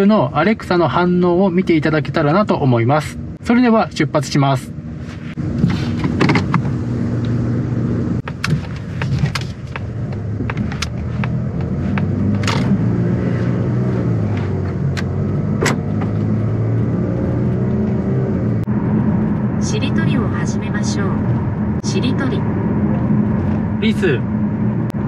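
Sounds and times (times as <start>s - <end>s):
car engine running: 0.0s - 25.0s
clicks and knocks inside car: 8.2s - 12.7s.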